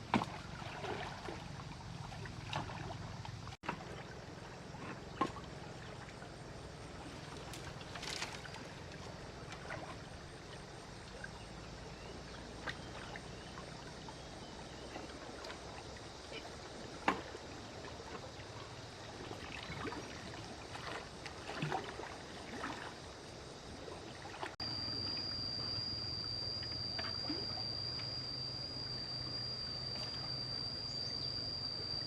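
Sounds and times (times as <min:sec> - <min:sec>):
water splashing and lapping: 0:00.0 - 0:11.4, 0:12.4 - 0:24.6.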